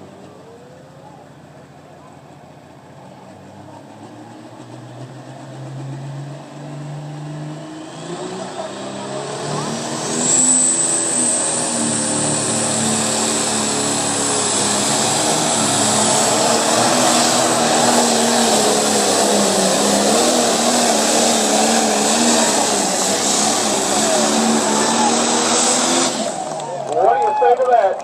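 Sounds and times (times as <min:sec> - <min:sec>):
tractor engine under load: 0:08.6 - 0:28.0.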